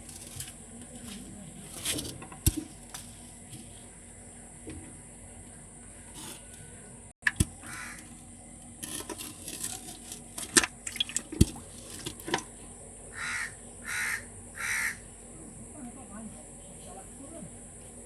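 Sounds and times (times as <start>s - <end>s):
handling noises: 0.0s - 5.0s, 6.1s - 12.5s
water splashing: 10.4s - 12.2s.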